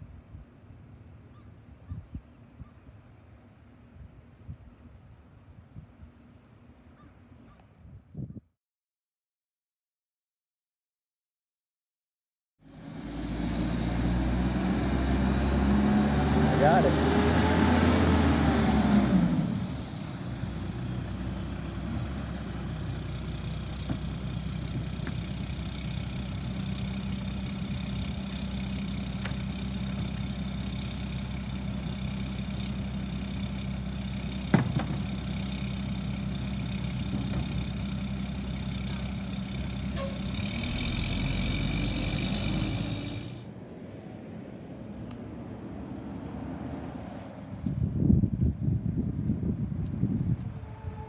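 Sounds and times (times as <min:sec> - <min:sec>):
garbage truck engine running: 0:12.7 - 0:43.4.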